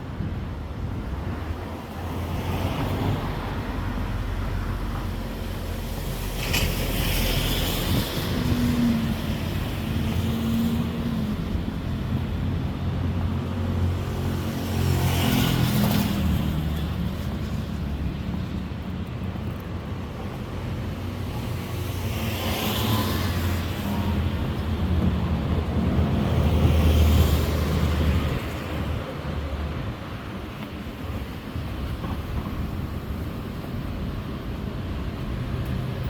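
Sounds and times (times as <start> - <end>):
vehicles passing with tyre hiss: 0.0 - 36.0.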